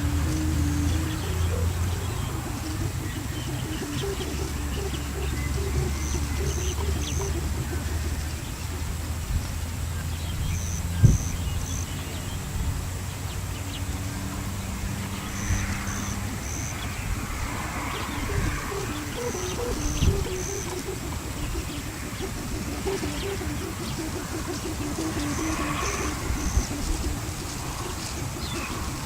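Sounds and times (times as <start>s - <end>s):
bird calling high notes: 0.0s - 9.2s, 15.2s - 29.0s.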